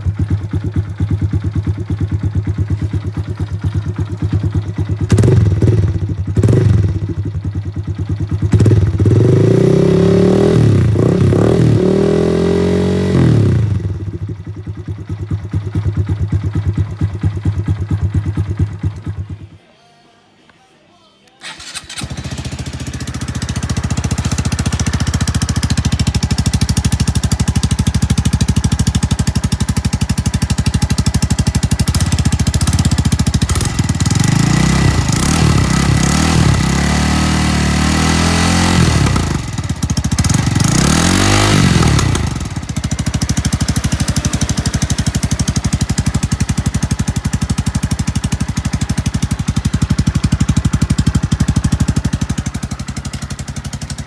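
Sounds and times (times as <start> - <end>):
motorcycle engine idling and revving: 0.0 - 19.6, 21.4 - 54.0.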